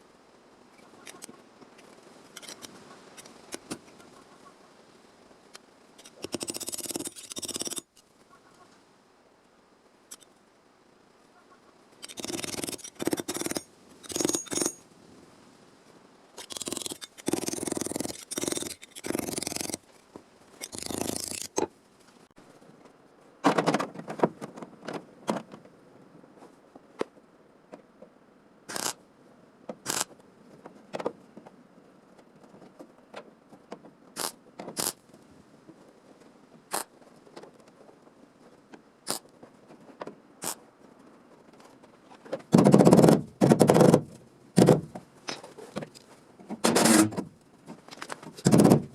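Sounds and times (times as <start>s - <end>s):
sharp ticks: 6.0s - 7.9s
hand tool scraping sheet metal: 12.1s - 14.8s, 16.4s - 19.8s, 20.6s - 21.6s, 46.6s - 47.3s, 48.4s - 48.9s.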